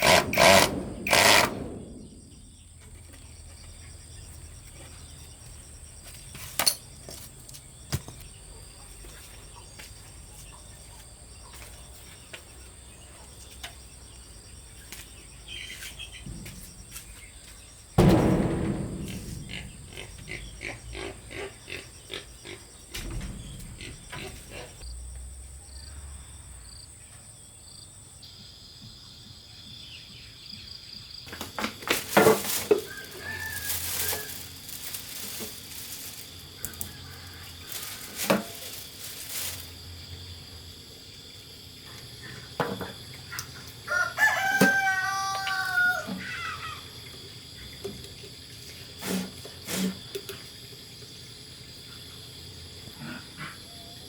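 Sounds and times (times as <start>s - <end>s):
knocks and clatter: 0.0s - 3.0s, 18.0s - 24.8s
rooster crowing: 32.8s - 34.5s, 36.8s - 38.1s, 43.8s - 46.8s.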